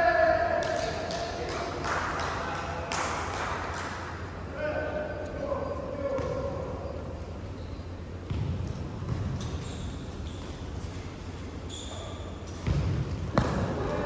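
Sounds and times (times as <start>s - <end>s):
ball bouncing on indoor court: 6.0s - 14.0s.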